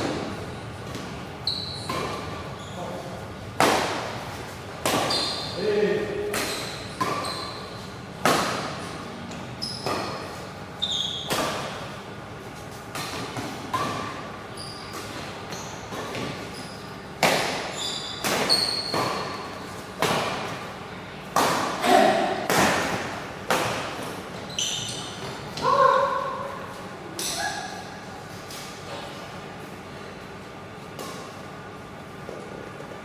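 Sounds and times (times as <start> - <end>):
shoes squeaking on court floor: 0.1 - 3.2, 4.2 - 20.8, 24.0 - 31.4
rackets striking shuttlecock: 12.9 - 16.4.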